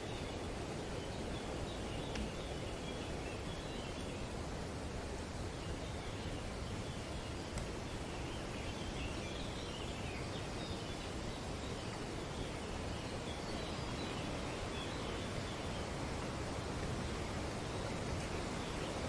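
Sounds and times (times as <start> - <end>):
wind rushing through leafy trees: 0.0 - 19.0.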